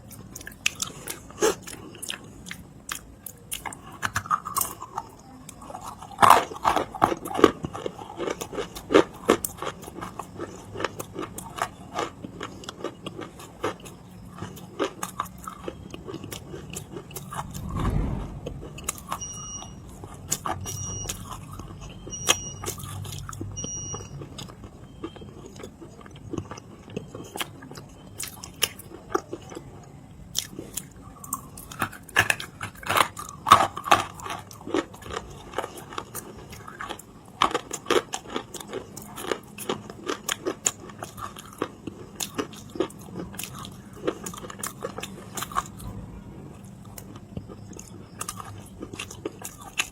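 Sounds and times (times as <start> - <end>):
crunching clay between teeth: 0.0 - 17.7, 20.3 - 46.0, 46.6 - 49.9
short high electronic beeps: 18.8 - 20.0.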